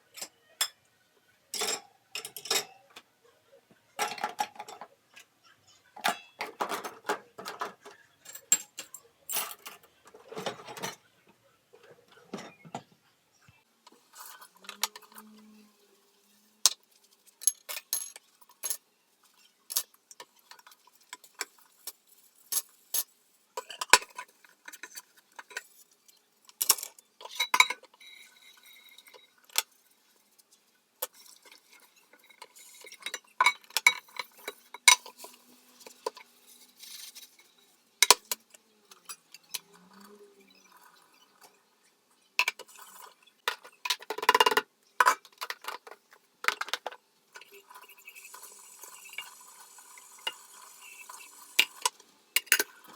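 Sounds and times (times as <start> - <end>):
dishes and cutlery clinking: 1.5 - 3.0, 4.0 - 11.1, 11.8 - 12.9, 17.4 - 29.8, 31.0 - 41.6, 42.4 - 49.4.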